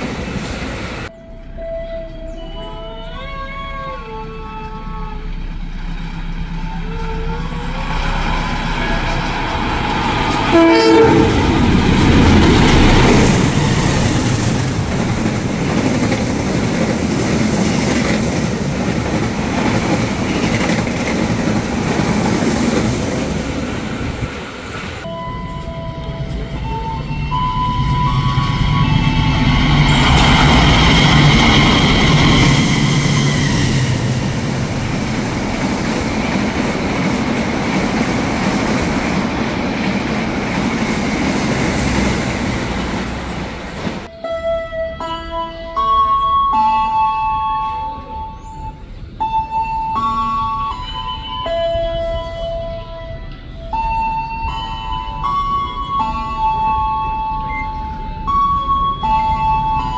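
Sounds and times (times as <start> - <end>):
diesel locomotive engine: 0.0 - 59.9
rumble of passing train: 0.0 - 59.9
train horn blast: 1.1 - 5.5, 6.4 - 12.1, 25.1 - 34.1.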